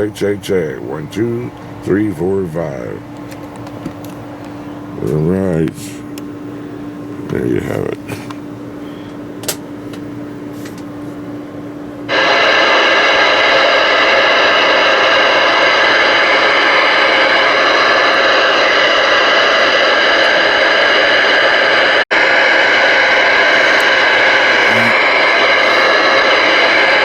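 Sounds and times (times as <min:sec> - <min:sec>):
radio static: 0:23.4 - 0:26.3.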